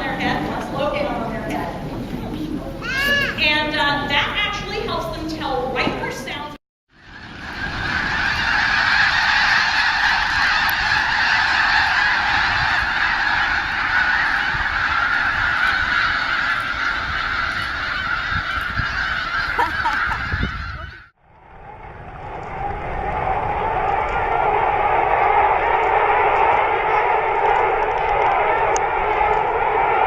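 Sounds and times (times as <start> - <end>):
geese honking: 7.0 - 21.1.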